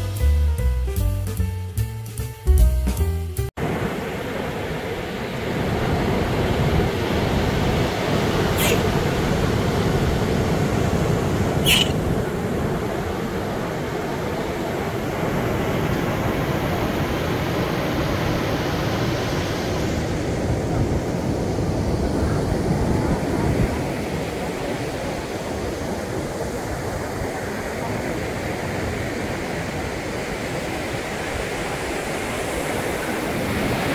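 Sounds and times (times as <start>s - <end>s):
ocean surf breaking: 3.6s - 33.9s
short high-pitched sound: 11.7s - 12.0s.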